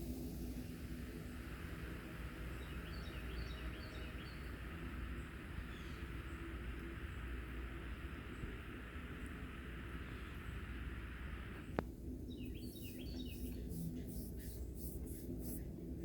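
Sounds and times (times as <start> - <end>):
steady hiss: 0.0 - 16.0
high thin bird chirps: 12.2 - 15.7.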